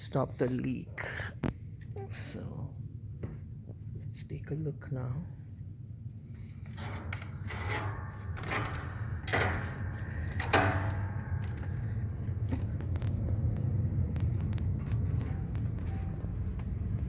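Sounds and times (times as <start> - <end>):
low rumble: 1.5 - 17.0
knocks and clatters of handling: 6.4 - 16.7.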